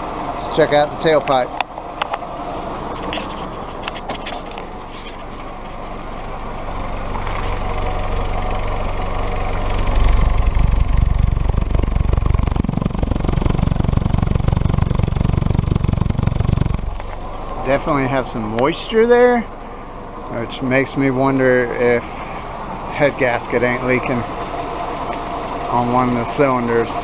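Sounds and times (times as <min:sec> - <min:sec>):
engine exhaust running: 0:00.0 - 0:27.0.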